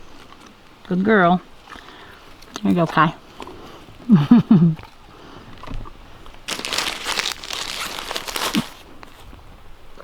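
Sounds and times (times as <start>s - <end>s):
wrapper crinkling: 6.5s - 8.9s.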